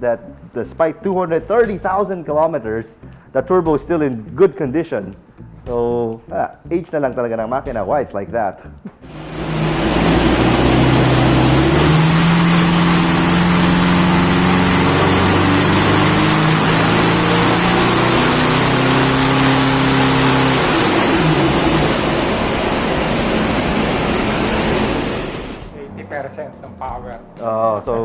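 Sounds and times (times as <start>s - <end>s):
diesel engine running hard: 9.0s - 25.7s
loud steady rush of noise: 9.0s - 25.8s.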